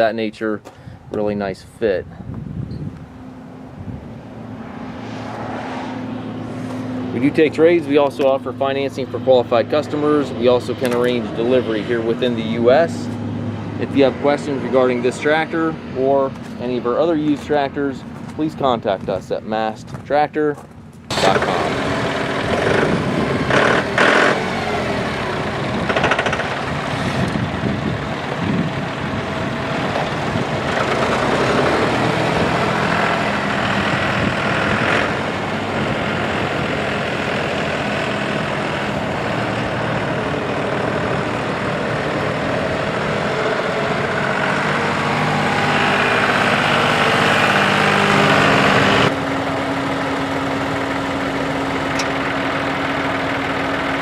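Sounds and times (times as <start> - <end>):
tractor diesel engine running: 6.0 - 54.0
engine knocks: 20.6 - 54.0.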